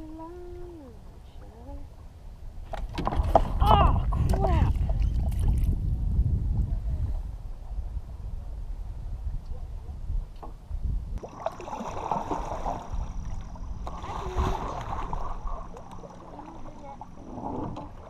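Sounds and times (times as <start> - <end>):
wind rumbling on microphone: 0.0 - 18.0
water splashing and lapping: 2.6 - 5.8, 11.2 - 18.0.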